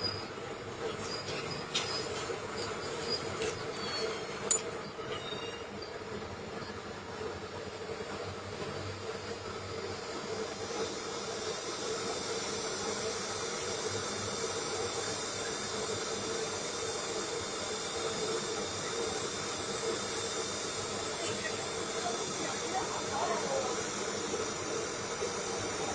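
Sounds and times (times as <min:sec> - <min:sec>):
engraving machine hissing and humming: 0:00.0 - 0:25.9.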